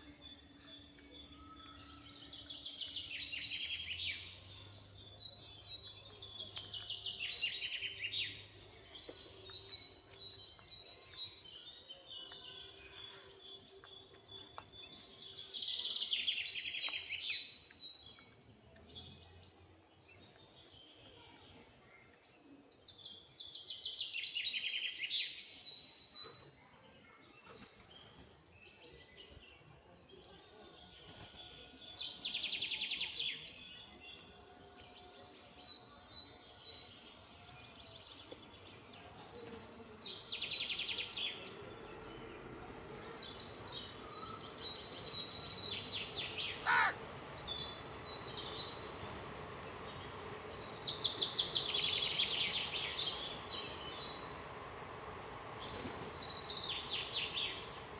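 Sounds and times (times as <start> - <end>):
soft bird chirps: 0.0 - 57.9
birds chattering bursts: 46.2 - 47.8.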